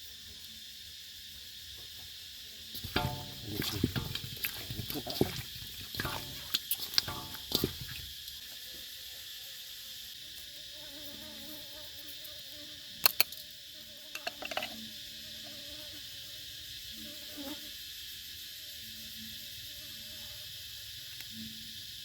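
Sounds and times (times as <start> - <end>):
insects buzzing: 0.0 - 22.0
sharp clicks: 13.0 - 13.4.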